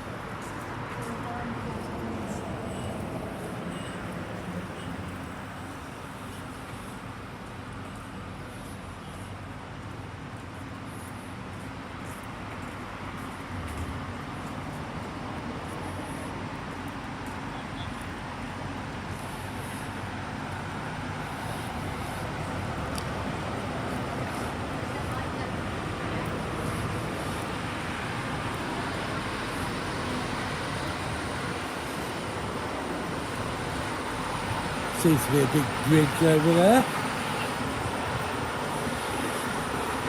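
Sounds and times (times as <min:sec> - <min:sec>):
road traffic rumble: 0:00.0 - 0:40.0.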